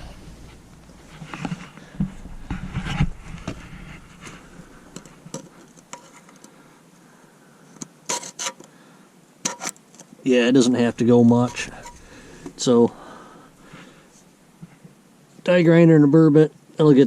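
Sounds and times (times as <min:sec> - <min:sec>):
low hum: 0:00.0 - 0:05.9, 0:10.5 - 0:14.6.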